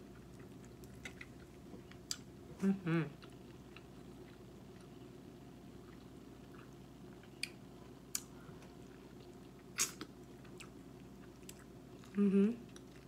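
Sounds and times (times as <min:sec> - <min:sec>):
low steady hum: 0:00.0 - 0:13.0
person chewing wet smacks: 0:00.1 - 0:02.3.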